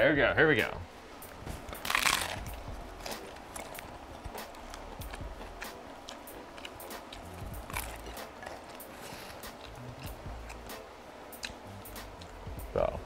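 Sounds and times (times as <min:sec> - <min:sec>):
crunchy chewing: 0:01.6 - 0:12.4
crunchy bite into taco: 0:01.8 - 0:10.8.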